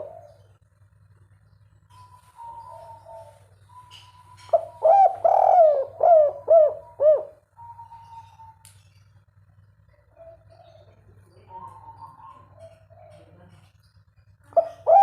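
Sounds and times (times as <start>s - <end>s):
dove cooing: 0.0s - 0.6s, 2.0s - 8.6s, 9.9s - 13.7s, 14.5s - 15.0s.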